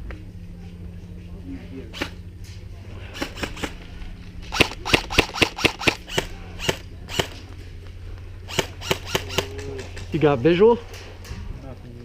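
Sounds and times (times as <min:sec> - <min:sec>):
airsoft guns firing: 0:03.1 - 0:03.8, 0:04.5 - 0:07.4, 0:08.4 - 0:09.8.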